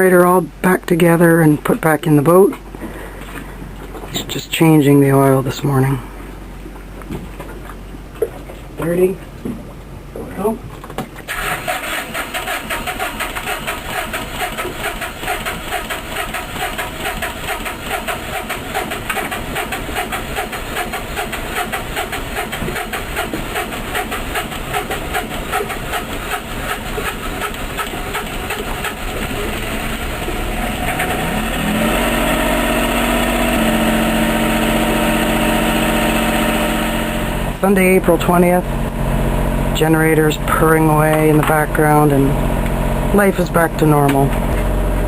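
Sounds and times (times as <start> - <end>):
generator engine running: 11.3 - 45.0.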